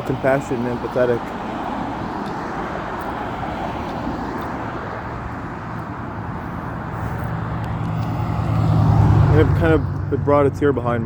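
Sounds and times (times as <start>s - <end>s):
passing vehicles rushing: 0.0s - 11.0s
approaching vehicle engine drone: 4.0s - 11.0s.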